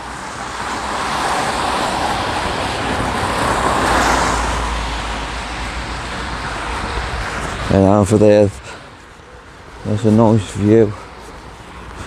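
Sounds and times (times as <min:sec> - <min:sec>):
vehicle passing close by: 0:00.0 - 0:08.0.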